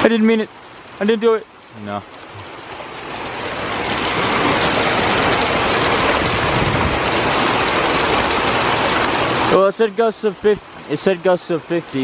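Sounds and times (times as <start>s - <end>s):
wind gust buffeting microphone: 6.0s - 7.9s.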